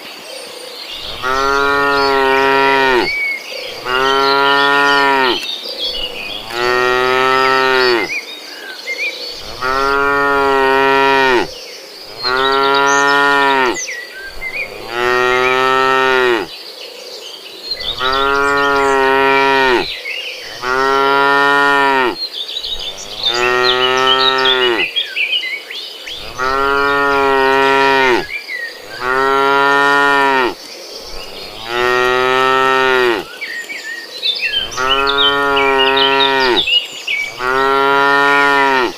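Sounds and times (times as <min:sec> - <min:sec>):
cow mooing: 0:01.0 - 0:05.4, 0:06.3 - 0:08.1, 0:09.4 - 0:11.5, 0:12.1 - 0:16.5, 0:17.9 - 0:22.2, 0:22.8 - 0:24.9, 0:26.2 - 0:30.6, 0:31.2 - 0:33.3, 0:34.6 - 0:38.9.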